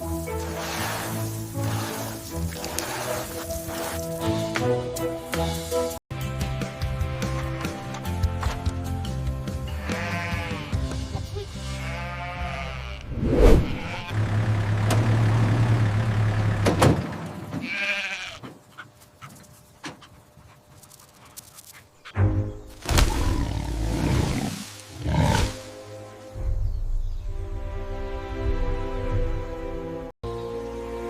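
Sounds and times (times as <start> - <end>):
background music: 0.0 - 13.5, 22.2 - 31.0.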